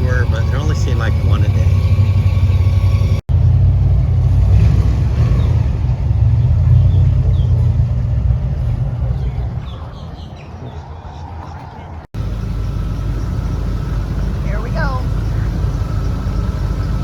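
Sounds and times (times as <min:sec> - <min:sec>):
airboat engine rumble: 0:00.0 - 0:17.0.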